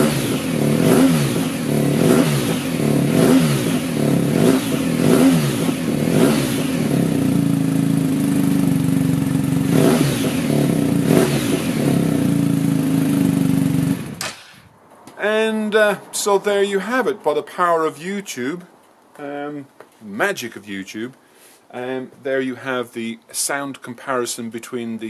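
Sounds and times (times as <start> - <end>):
motorcycle engine idling: 0.0 - 14.2
motorcycle engine revving: 0.0 - 14.6.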